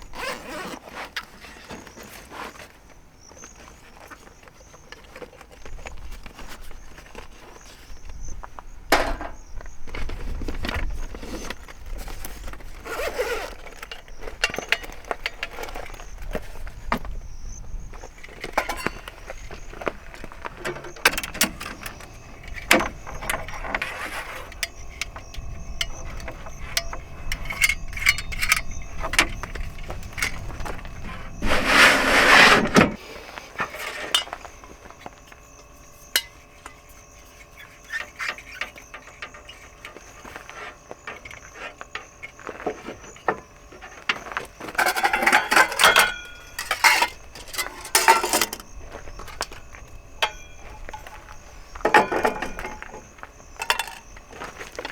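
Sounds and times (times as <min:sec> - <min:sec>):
objects clicking and knocking: 0:18.2 - 0:31.6, 0:38.0 - 0:54.9
loud rustling: 0:18.3 - 0:34.2
ringing clinks: 0:24.4 - 0:30.5, 0:44.8 - 0:48.7, 0:50.2 - 0:52.9.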